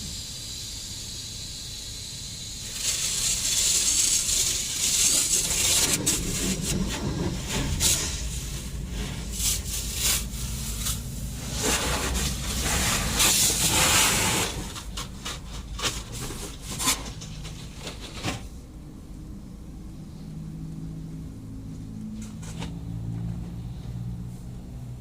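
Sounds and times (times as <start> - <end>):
pressure washer spraying a car: 0.0 - 15.2
low machine rumble: 4.4 - 25.0.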